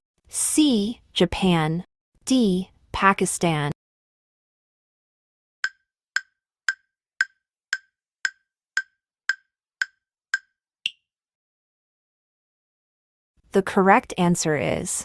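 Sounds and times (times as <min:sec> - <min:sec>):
sharp timer ticks: 0:05.6 - 0:10.5.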